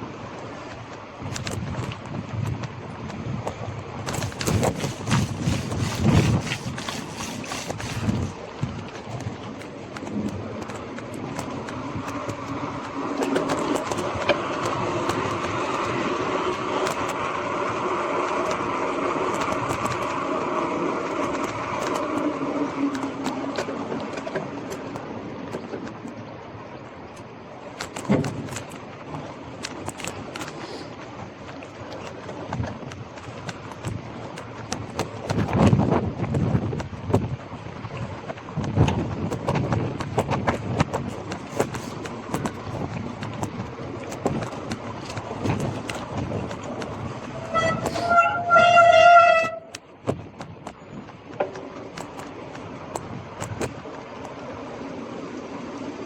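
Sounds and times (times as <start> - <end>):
tyre and road noise: 0.3 - 56.0
bike rattling and knocking: 1.3 - 17.7, 32.5 - 54.3
vehicle horn: 47.4 - 49.8.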